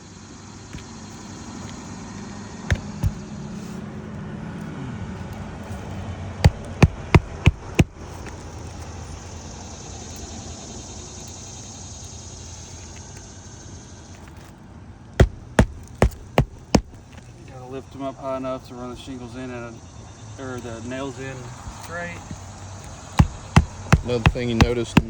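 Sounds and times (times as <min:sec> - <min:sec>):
low background hum: 0:00.0 - 0:25.0
hammer striking nails: 0:02.7 - 0:03.2, 0:06.4 - 0:08.0, 0:15.2 - 0:17.2, 0:23.2 - 0:25.0.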